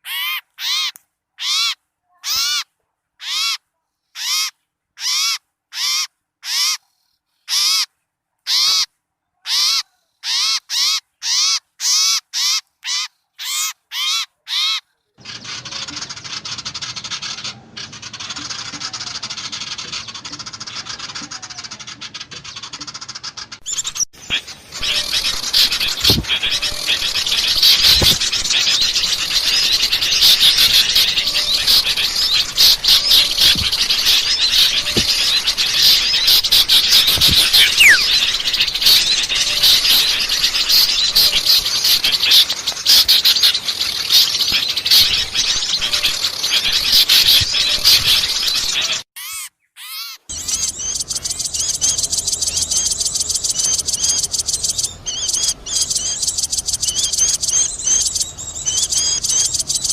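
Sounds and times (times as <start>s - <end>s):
songbirds chattering and chirping: 8.5s - 59.9s
high-pitched regular chirping: 23.7s - 48.3s.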